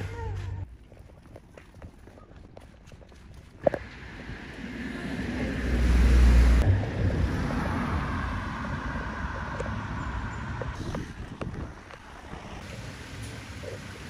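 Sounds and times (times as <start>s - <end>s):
wind buffeting microphone: 6.6s - 12.7s.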